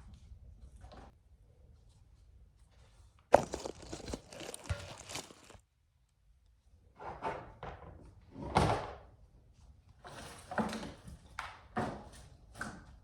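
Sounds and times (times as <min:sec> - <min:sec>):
crunching and crinkling: 0:03.3 - 0:05.6
rustling: 0:03.3 - 0:05.6.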